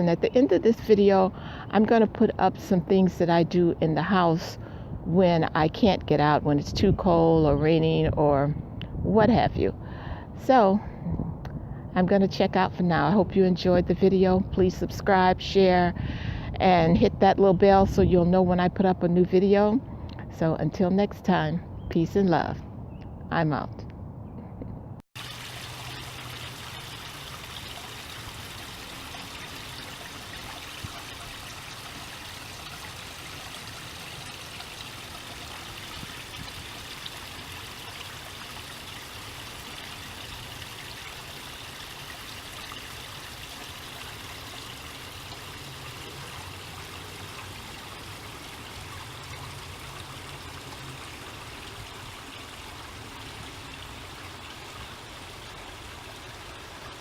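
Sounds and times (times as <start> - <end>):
running water rushing: 25.2 - 57.0.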